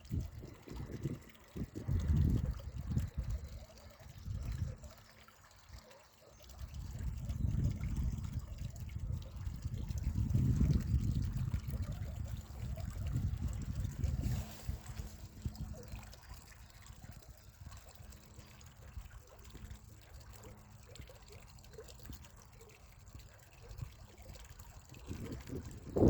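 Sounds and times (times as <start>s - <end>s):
water trickling: 0.0s - 26.0s.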